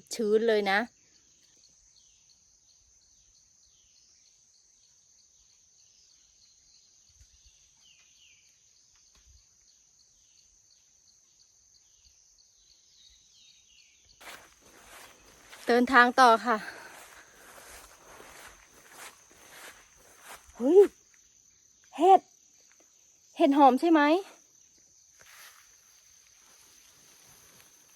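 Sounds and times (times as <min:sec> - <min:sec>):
high-pitched insect drone: 0:14.2 - 0:21.6.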